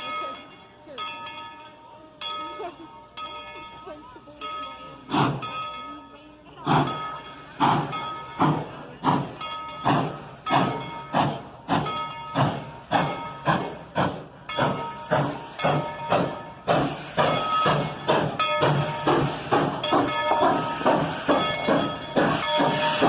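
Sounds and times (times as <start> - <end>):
steam locomotive chuffing: 0.0 - 23.0
steam hiss: 4.0 - 5.6, 6.6 - 23.0.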